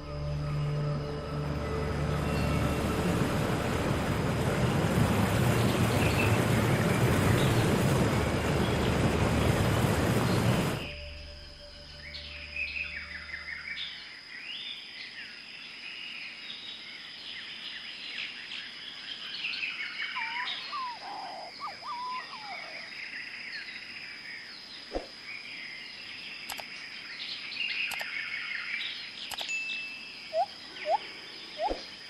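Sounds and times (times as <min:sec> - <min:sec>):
steady high-pitched whine: 0:00.0 - 0:13.8
birds chirping and twittering: 0:01.9 - 0:11.1, 0:11.9 - 0:32.0
louder low bird calls: 0:19.9 - 0:23.0
sharp click: 0:26.5 - 0:26.7, 0:29.3 - 0:29.5.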